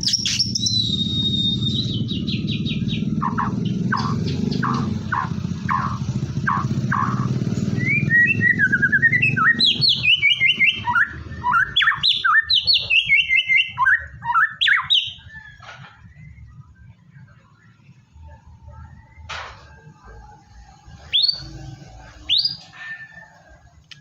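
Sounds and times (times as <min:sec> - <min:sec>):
bird singing whistles: 0:00.0 - 0:17.8, 0:21.0 - 0:23.2.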